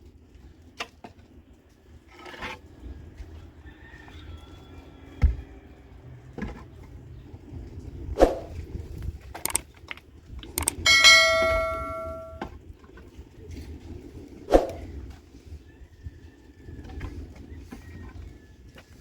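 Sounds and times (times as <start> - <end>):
metal object ringing like a bell: 10.7 - 12.4.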